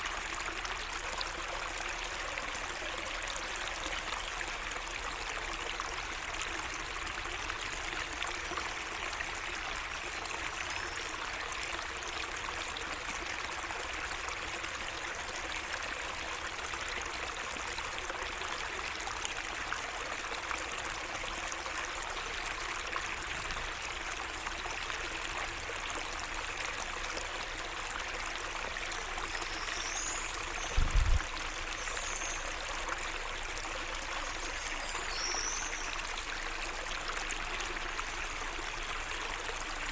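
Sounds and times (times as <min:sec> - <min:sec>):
water trickling and splashing: 0:00.0 - 0:39.9
low thump: 0:30.7 - 0:31.3.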